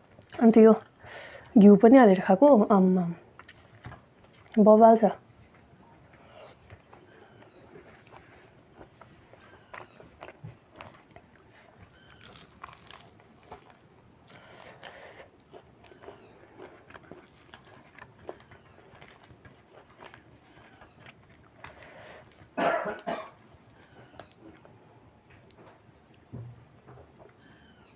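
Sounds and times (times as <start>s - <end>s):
chewing and biting: 3.4s - 4.6s, 5.5s - 22.6s, 23.3s - 24.8s
high squeaky animal call: 11.9s - 12.6s, 23.8s - 24.3s.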